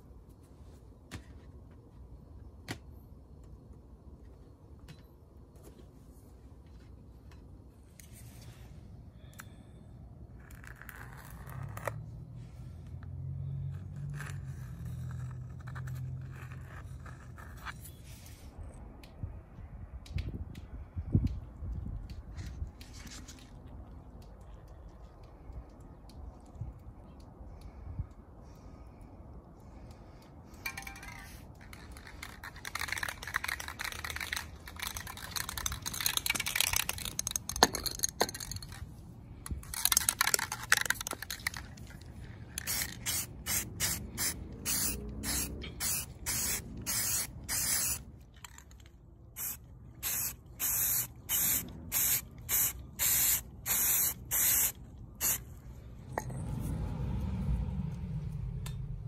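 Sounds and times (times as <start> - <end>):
aerosol spray can spraying: 42.6 - 48.0, 49.4 - 55.4.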